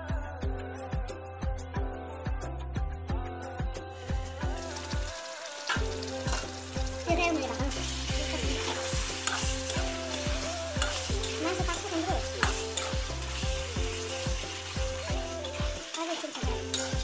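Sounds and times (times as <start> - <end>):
background music with steady beat: 0.0 - 17.0
chicken sizzling in gravy: 4.0 - 17.0
spatula scraping a pan: 7.8 - 17.0.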